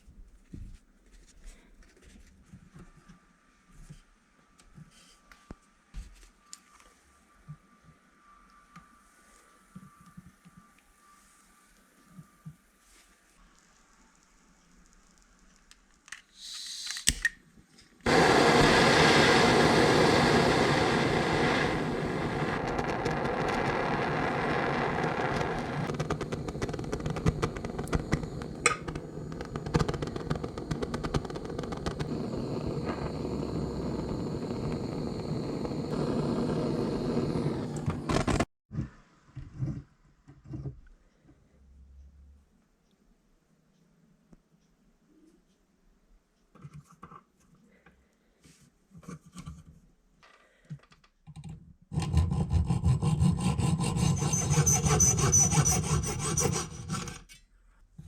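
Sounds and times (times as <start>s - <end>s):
rotary engraver running: 18.1s - 38.4s, 53.0s - 57.1s.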